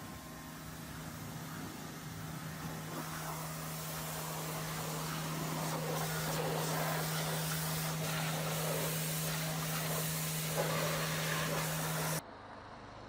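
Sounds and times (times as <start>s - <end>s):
road sweeper suction hiss: 0.0s - 12.2s.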